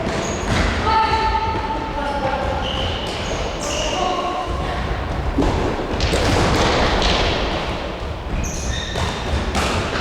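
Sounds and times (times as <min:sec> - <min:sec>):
din of play in a hall: 0:00.0 - 0:10.0
ball thuds: 0:05.1 - 0:10.0.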